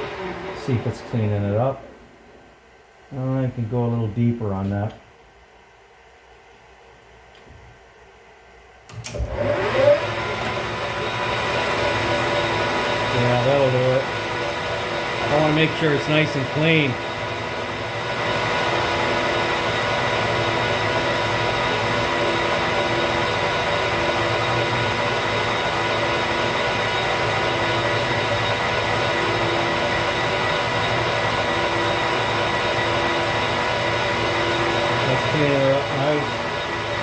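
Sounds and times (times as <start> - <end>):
metal lathe gear whine: 9.1 - 37.0.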